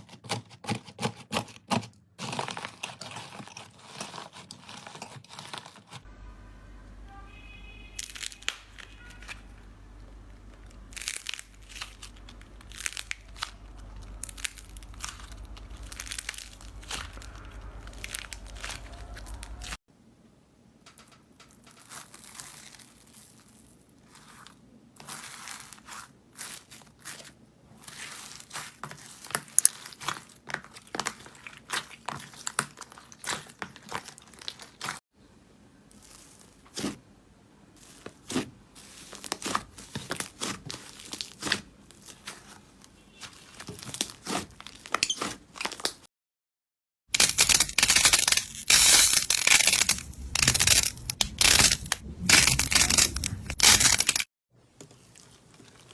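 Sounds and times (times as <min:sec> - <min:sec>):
slime clicking and crackling: 0:08.0 - 0:09.5, 0:10.3 - 0:19.8, 0:27.9 - 0:35.0, 0:39.0 - 0:42.5, 0:47.2 - 0:54.2.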